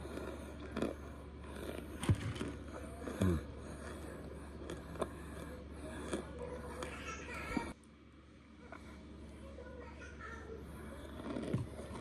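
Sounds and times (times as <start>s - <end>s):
chewing crunches: 0.0s - 7.7s, 10.7s - 12.0s
steady low hum: 0.0s - 12.0s.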